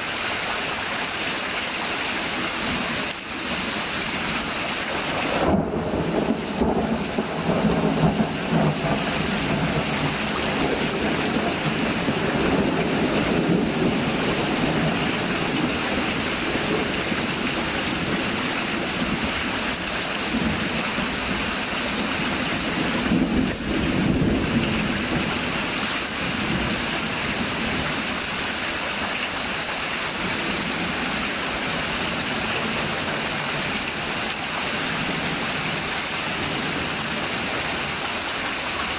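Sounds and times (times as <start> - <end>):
heavy rain pouring: 0.0 - 38.9
low thunder rumbles: 5.0 - 28.2.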